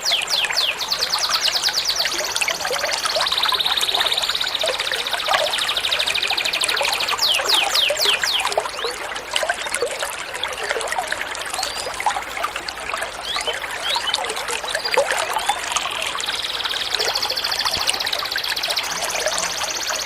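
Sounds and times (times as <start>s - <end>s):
songbird trilling: 0.0s - 8.9s
water trickling and gurgling: 0.0s - 20.0s.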